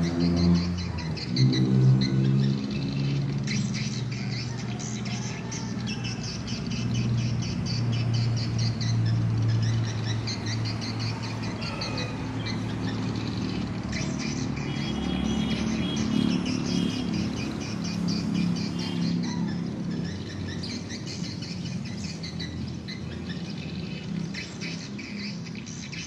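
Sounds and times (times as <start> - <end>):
birds twittering: 0.0 - 26.0.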